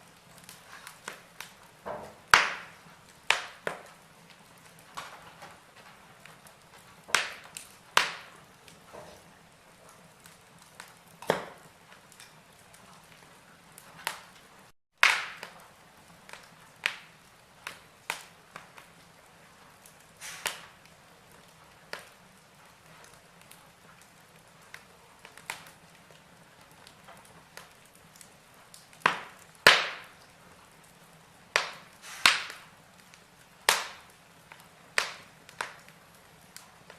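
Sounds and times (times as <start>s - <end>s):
wood fire crackling: 0.0s - 36.9s.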